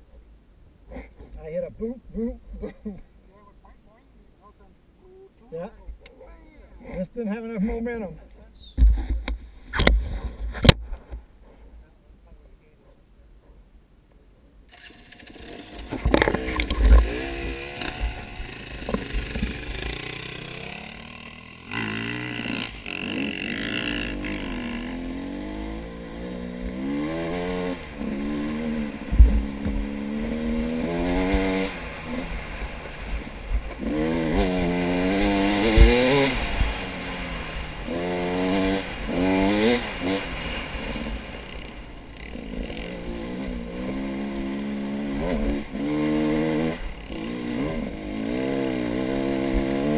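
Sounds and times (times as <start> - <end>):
off-road vehicle engine revving: 14.8 - 49.9
dull thumps: 29.1 - 29.9.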